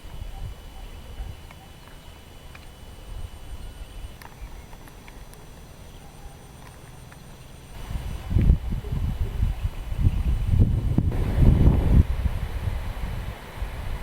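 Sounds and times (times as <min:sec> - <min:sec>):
wind rumbling on microphone: 0:07.7 - 0:14.0.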